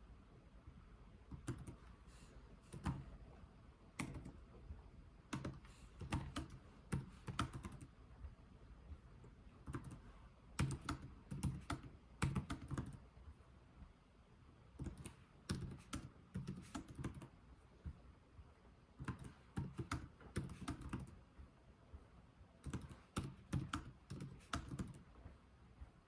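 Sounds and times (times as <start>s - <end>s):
keyboard keys clicking: 1.3s - 1.8s, 4.0s - 4.4s, 5.3s - 7.9s, 10.6s - 13.0s, 14.8s - 17.3s, 19.0s - 21.2s, 22.6s - 25.0s.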